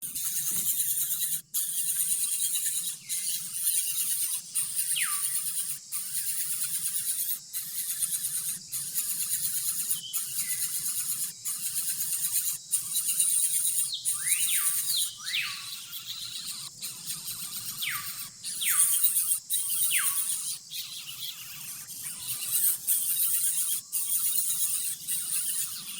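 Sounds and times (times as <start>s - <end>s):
birds whistling falling calls: 13.7s - 16.7s, 17.6s - 21.5s.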